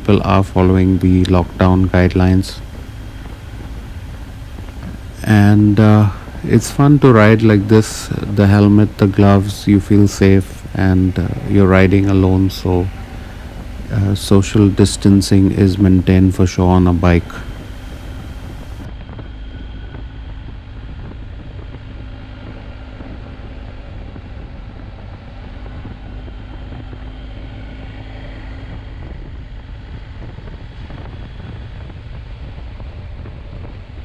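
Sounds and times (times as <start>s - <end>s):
faint steady tone: 0.0s - 18.9s
motorcycle engine drone: 0.0s - 18.9s
wind rushing over microphone: 0.0s - 34.0s.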